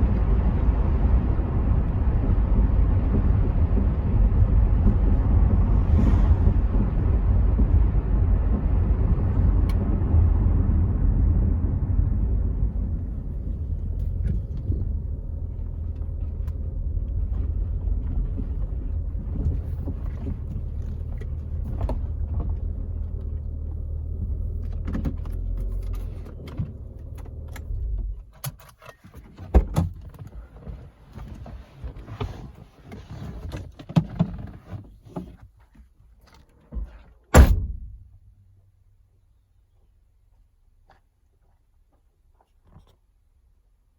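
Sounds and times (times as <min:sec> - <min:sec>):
road noise: 0:00.0 - 0:28.3
car engine low hum: 0:00.0 - 0:28.5, 0:37.3 - 0:41.6
loud thump: 0:37.3 - 0:38.3.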